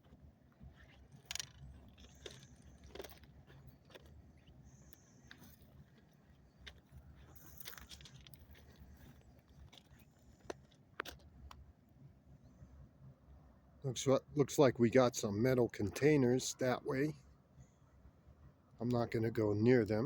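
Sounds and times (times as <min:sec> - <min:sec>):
low steady rumble: 0:00.0 - 0:20.0
footsteps on gravel: 0:00.6 - 0:04.6, 0:05.2 - 0:10.7.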